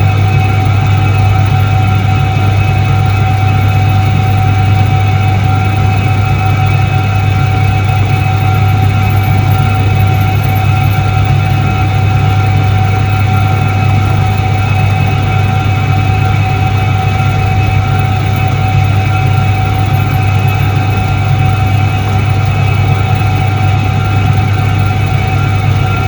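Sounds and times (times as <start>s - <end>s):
washing machine motor hum: 0.0s - 26.0s.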